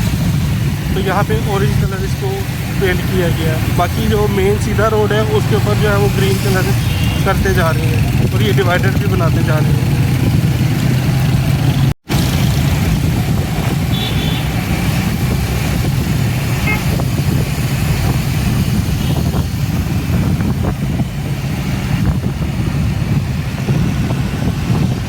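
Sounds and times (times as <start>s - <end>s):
traffic rumble: 0.0s - 25.0s
faint car horn toots: 6.7s - 7.3s, 13.9s - 14.5s, 16.6s - 17.0s.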